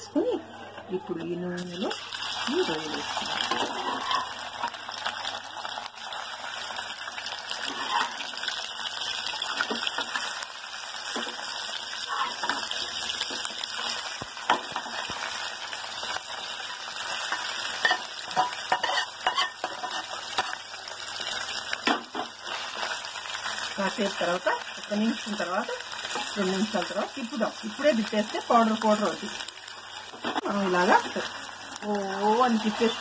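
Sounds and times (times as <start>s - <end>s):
prawns sizzling in hot oil: 1.6s - 33.0s
metal spatula scraping and tapping pan: 12.1s - 13.4s, 17.3s - 20.6s.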